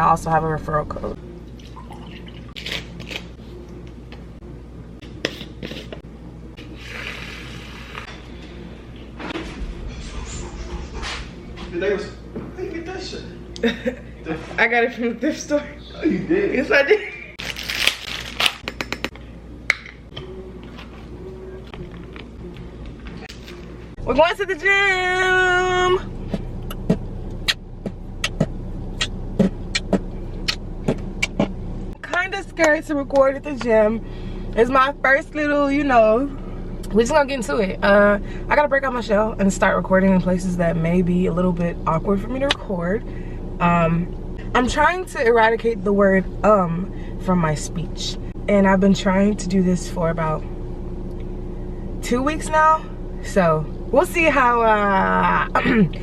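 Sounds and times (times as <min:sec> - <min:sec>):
low steady hum: 0:00.0 - 0:56.0
car cabin rumble while driving: 0:23.6 - 0:34.0.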